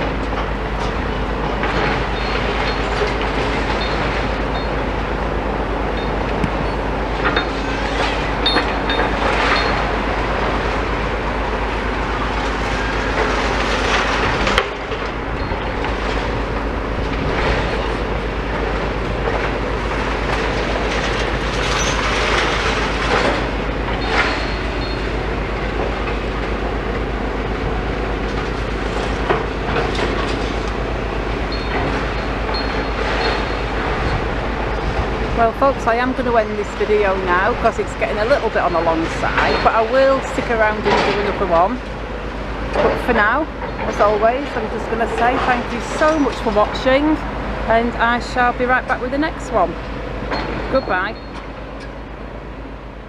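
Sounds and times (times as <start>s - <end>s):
debris clanking and scraping: 0.0s - 4.8s, 5.9s - 10.9s, 12.1s - 25.2s, 28.3s - 41.9s
excavator diesel engines running: 0.0s - 53.0s.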